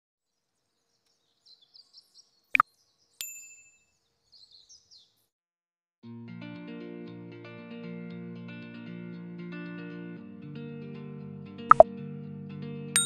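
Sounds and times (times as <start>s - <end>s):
small bird chirping: 0.3s - 5.3s.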